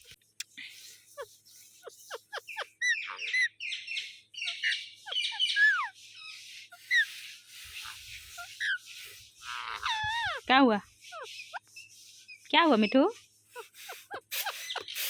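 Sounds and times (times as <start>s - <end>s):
parakeet squawking calls: 1.9s - 5.9s, 6.7s - 10.4s, 13.6s - 15.0s.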